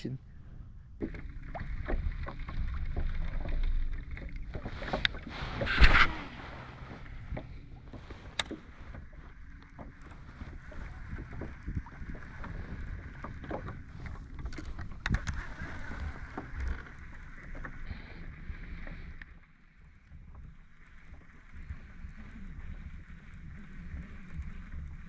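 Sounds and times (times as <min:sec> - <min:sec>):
water lapping against hull: 0:00.0 - 0:25.0
wind rumbling on microphone: 0:00.0 - 0:25.0.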